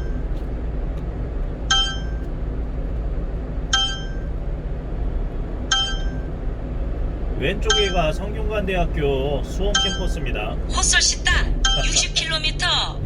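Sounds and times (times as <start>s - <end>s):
truck cabin drone on road: 0.0s - 13.0s
navigation warning chime: 1.7s - 2.2s, 3.8s - 4.3s, 5.7s - 6.2s, 7.6s - 8.2s, 9.7s - 10.3s, 11.5s - 12.1s.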